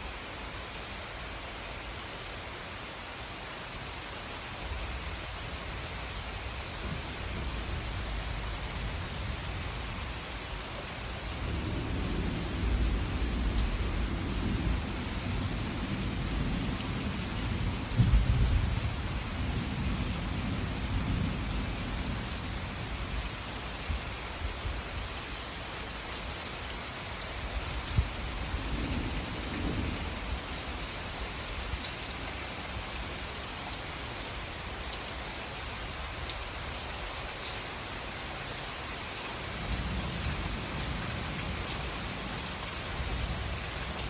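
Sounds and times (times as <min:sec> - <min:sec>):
steady rain: 0:00.0 - 0:44.0
thunder rumbling: 0:11.4 - 0:23.1, 0:27.6 - 0:30.8.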